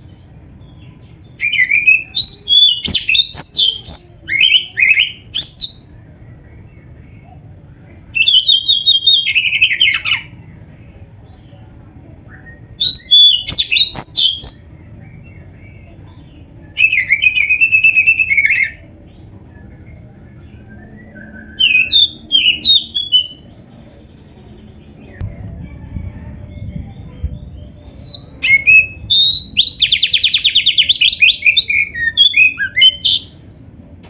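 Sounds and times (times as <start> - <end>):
bird singing whistled phrases: 1.4 - 5.9, 12.3 - 14.7, 16.6 - 18.9, 19.5 - 23.5, 27.4 - 33.4.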